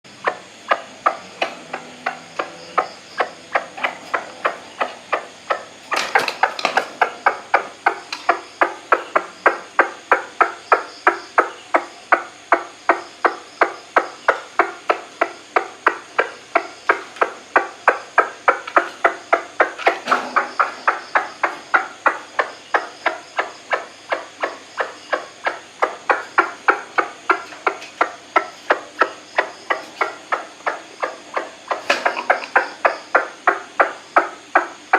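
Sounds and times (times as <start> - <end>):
waterhen calling kwak notes: 0.2 - 34.9.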